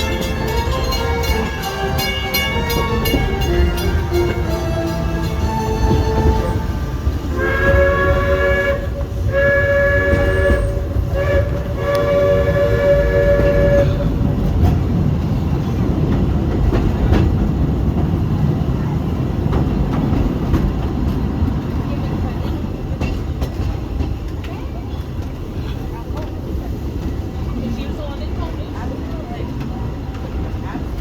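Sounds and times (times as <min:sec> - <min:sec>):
steam locomotive whistle: 0:00.0 - 0:14.2
train rumbling on track: 0:00.0 - 0:31.0.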